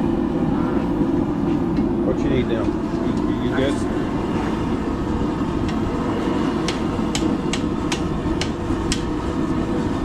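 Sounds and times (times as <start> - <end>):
low rumbling noise: 0.0 - 10.0
hammer striking steel on anvil: 6.6 - 9.1.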